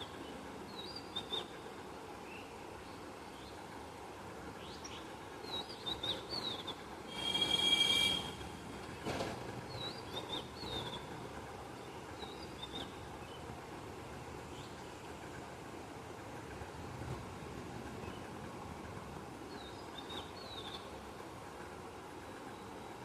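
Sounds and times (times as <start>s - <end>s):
loud held multi-pitched sound: 7.1s - 8.9s.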